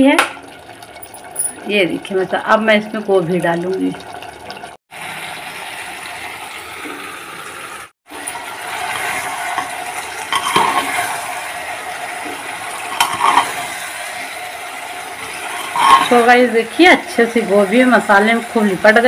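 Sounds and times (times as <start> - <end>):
vegetables sizzling in hot oil: 4.9 - 19.0
metal ladle scraping a pot: 8.9 - 11.2, 12.8 - 13.8, 15.2 - 16.3.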